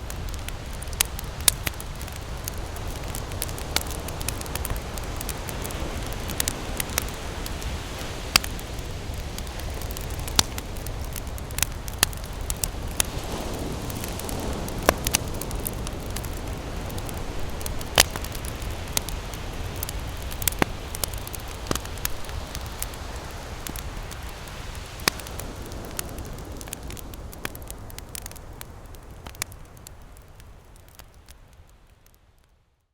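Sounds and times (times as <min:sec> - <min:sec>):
campfire crackling and popping: 0:00.0 - 0:32.5
ocean surf rushing: 0:02.8 - 0:26.6.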